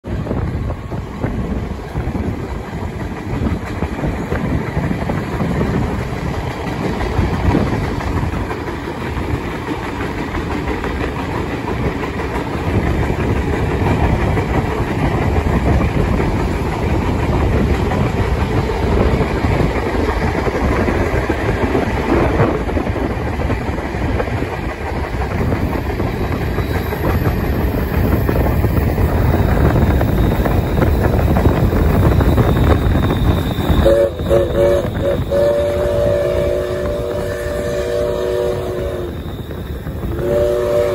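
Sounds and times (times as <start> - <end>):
train wheels rumbling and clattering: 0.0 - 40.9
high-pitched wheel squeal: 29.1 - 36.4, 38.5 - 40.2.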